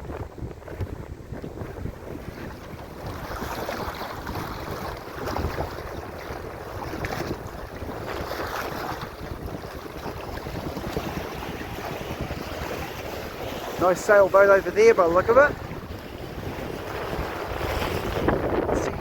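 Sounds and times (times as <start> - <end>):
water rushing along a hull: 0.0 - 19.0
wind buffeting microphone: 0.0 - 19.0.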